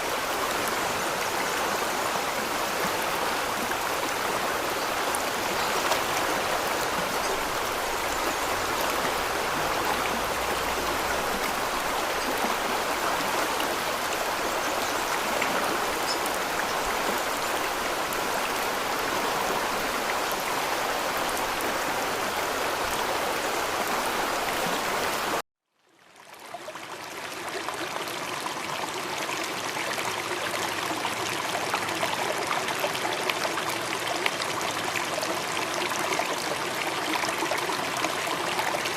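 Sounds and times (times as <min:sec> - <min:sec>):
running water: 0:00.0 - 0:25.4.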